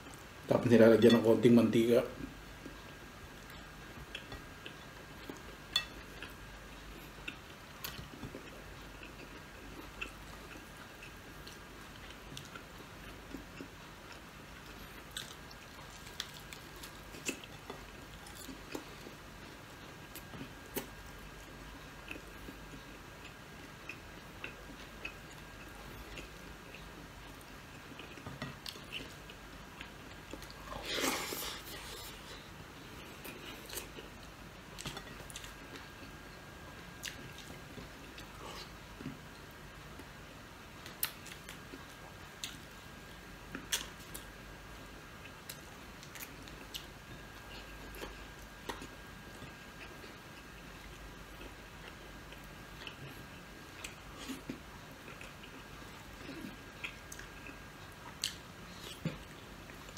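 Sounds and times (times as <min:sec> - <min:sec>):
person chewing crispy food: 0:02.6 - 0:40.1, 0:40.8 - 0:59.9.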